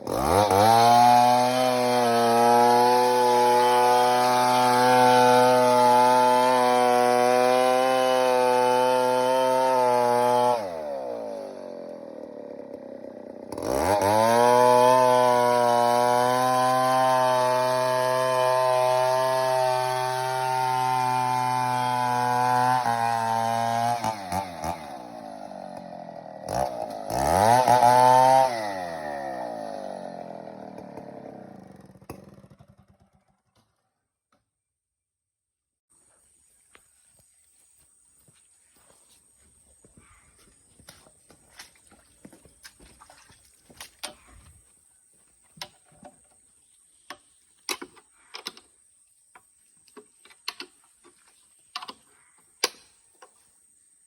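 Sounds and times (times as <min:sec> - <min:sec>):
chainsaw revving and idling: 0:00.0 - 0:33.7.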